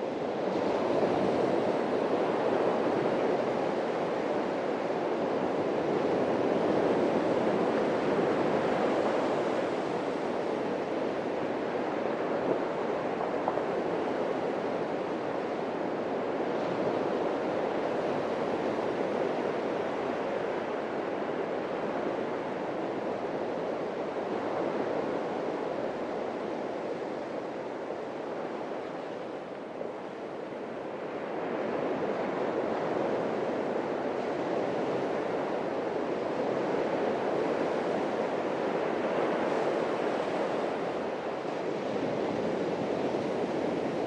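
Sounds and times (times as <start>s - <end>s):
waves breaking on beach: 0.0s - 44.0s.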